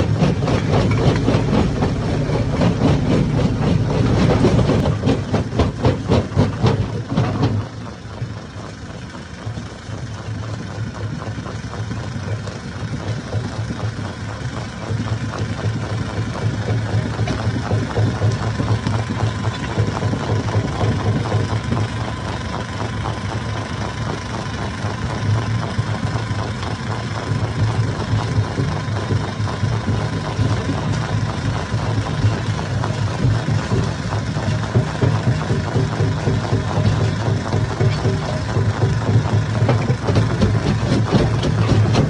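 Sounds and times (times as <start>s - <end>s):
rock crusher clattering: 0.0s - 7.7s, 27.2s - 42.0s
low mechanical drone: 0.0s - 42.0s.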